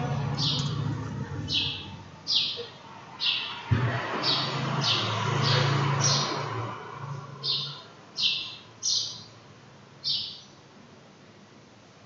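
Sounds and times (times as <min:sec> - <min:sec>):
faint low hum: 0:00.0 - 0:02.4
bird chirping: 0:00.0 - 0:03.6, 0:07.4 - 0:09.4, 0:10.0 - 0:10.6.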